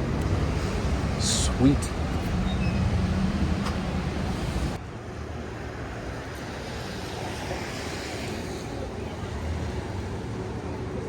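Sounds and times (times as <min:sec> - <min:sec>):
traffic noise: 0:00.0 - 0:11.0
rain on wet street: 0:05.6 - 0:10.0.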